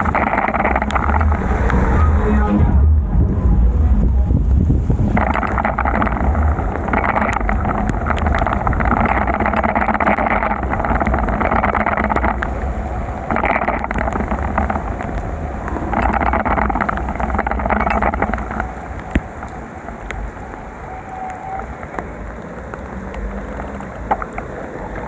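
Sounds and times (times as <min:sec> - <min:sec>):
wind rumble on microphone: 0:00.0 - 0:25.0
bicycle tyres hissing on wet road: 0:18.2 - 0:25.0.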